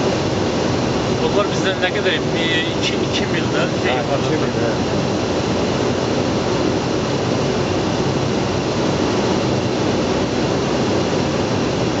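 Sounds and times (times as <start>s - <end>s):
jet engine noise: 0.0s - 12.0s
rush of airflow: 0.0s - 12.0s.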